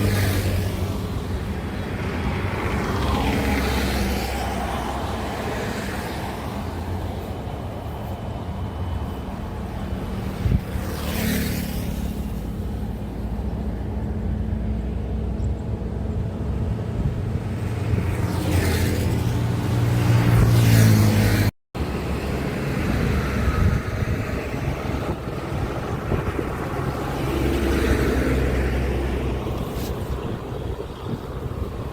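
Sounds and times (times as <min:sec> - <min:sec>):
diesel engine rumble: 0:21.8 - 0:31.9.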